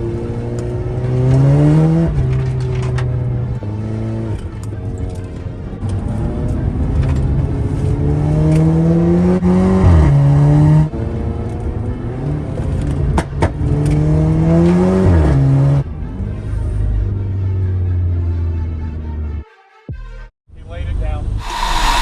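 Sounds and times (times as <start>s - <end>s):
car engine accelerating hard: 0.0s - 5.2s, 5.8s - 15.8s.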